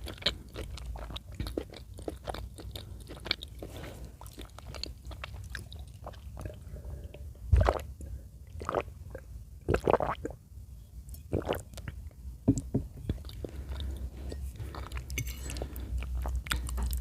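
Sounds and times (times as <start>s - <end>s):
wet chewing and mouth smacks: 0.0s - 6.6s, 13.1s - 17.0s.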